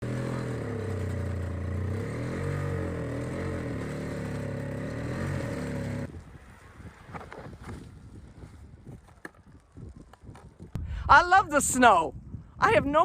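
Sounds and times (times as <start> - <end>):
snowblower engine running: 0.0 - 6.1.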